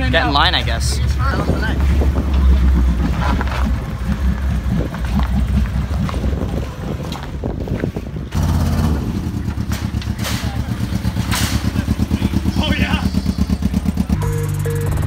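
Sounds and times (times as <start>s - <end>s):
car engine revving hard: 8.3s - 9.6s.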